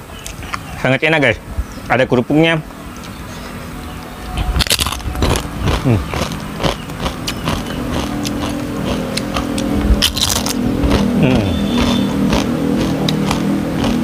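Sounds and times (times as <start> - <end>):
vehicle engine passing: 2.4 - 14.0
crunching a cracker: 4.6 - 9.4, 10.0 - 11.1.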